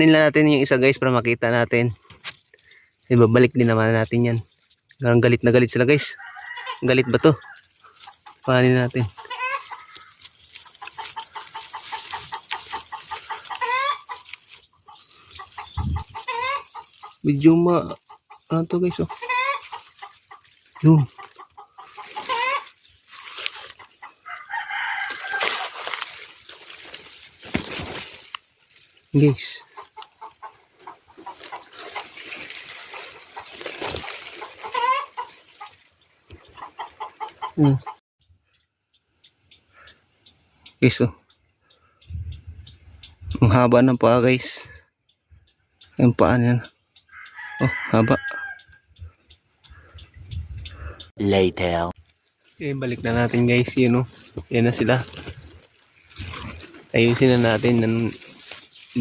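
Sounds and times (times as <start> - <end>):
bird nestlings calling: 0.5 - 38.0, 48.4 - 59.0.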